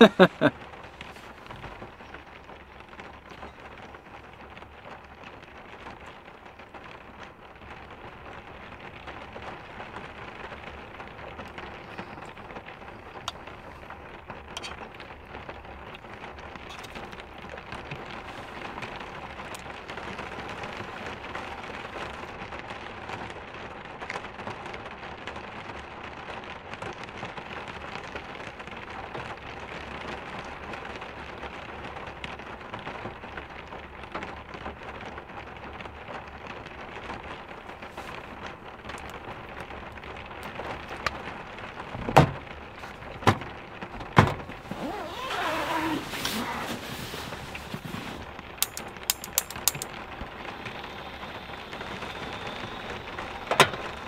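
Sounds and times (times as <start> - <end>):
rain pattering on car roof: 0.0 - 54.0
quick clicks: 48.6 - 49.9.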